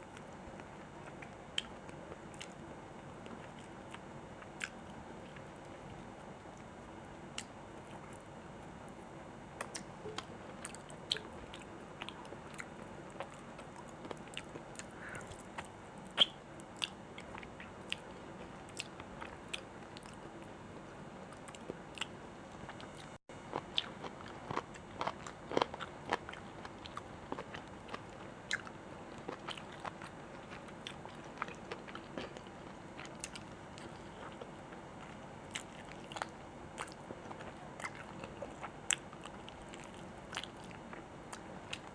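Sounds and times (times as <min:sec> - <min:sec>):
chewing and biting food: 0:22.8 - 0:41.9
food crunches: 0:23.5 - 0:28.0.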